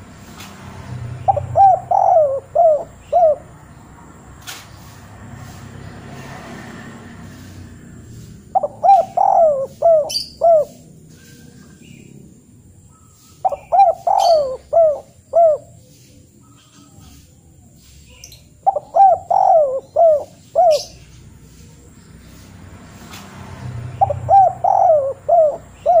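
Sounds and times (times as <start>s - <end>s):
bird calling: 1.1s - 3.9s, 8.1s - 12.2s, 12.8s - 22.5s, 23.9s - 26.0s.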